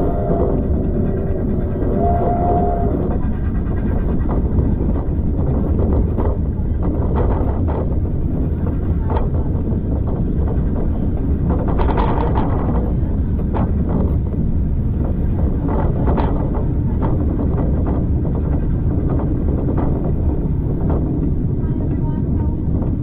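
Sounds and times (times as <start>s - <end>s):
knocks and rattles: 0.0s - 23.0s
railway carriage rumble: 0.0s - 23.0s
wind buffeting microphone: 0.0s - 23.0s.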